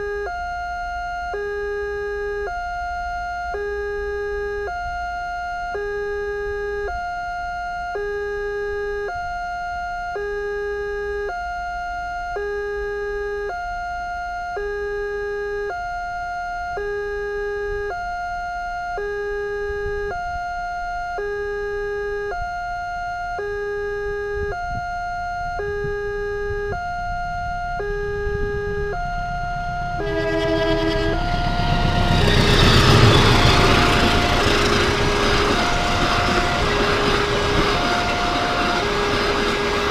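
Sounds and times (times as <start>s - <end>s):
two-tone crossing alarm: 0.0s - 39.9s
train rumble: 28.2s - 39.9s.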